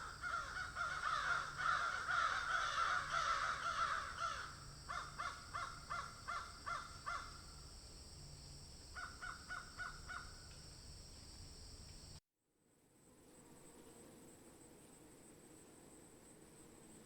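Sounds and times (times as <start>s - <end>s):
crow cawing: 0.0s - 7.6s, 9.0s - 10.4s.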